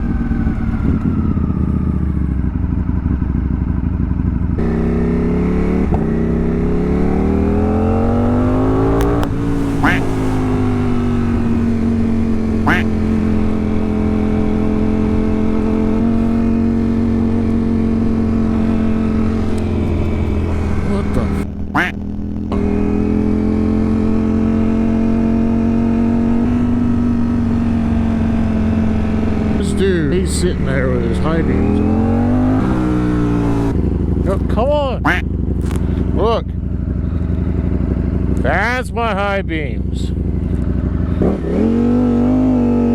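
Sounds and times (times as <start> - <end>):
low wind rumble: 0.0 - 42.9
motorcycle engine accelerating: 0.0 - 42.9
wind rush: 7.4 - 22.3.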